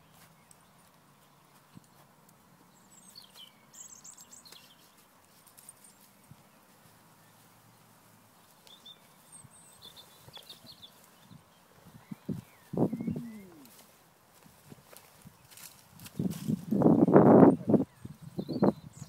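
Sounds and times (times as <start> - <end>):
small birds chirping: 0.0 - 14.0, 14.8 - 19.0.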